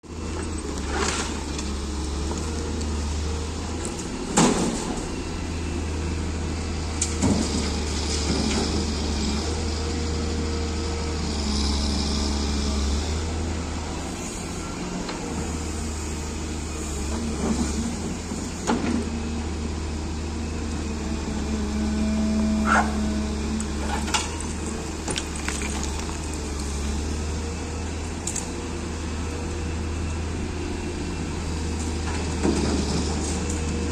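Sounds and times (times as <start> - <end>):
excavator diesel engine running: 0.1 - 33.9
bucket clanks and knocks: 24.1 - 26.4.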